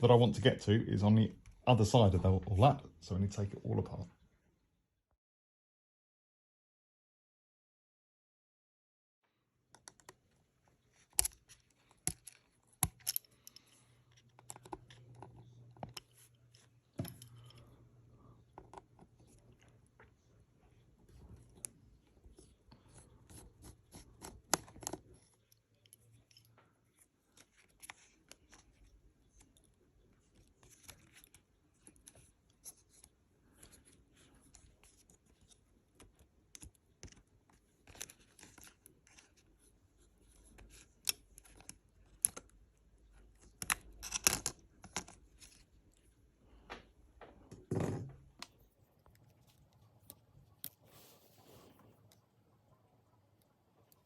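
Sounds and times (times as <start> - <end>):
small clicks and taps: 9.7 - 10.2.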